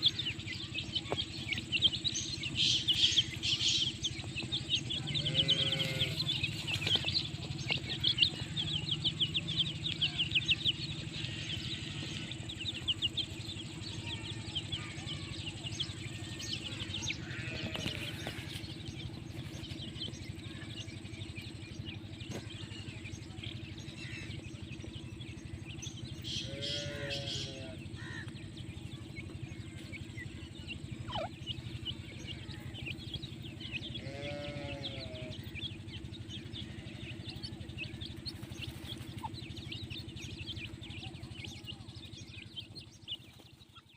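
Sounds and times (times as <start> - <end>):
small birds twittering: 0.0 - 43.9
steady hum: 0.0 - 43.9
animal calls: 3.2 - 18.9, 26.4 - 28.3, 29.8 - 40.0.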